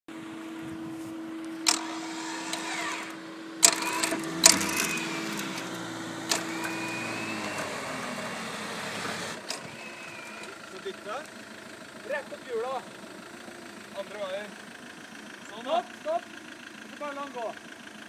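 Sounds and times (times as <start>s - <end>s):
motor humming: 0.2s - 10.7s.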